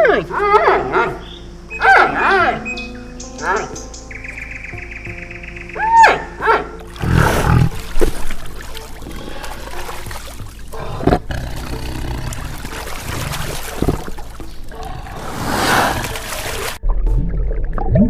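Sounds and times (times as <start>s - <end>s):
low animal call: 0.0s - 3.8s.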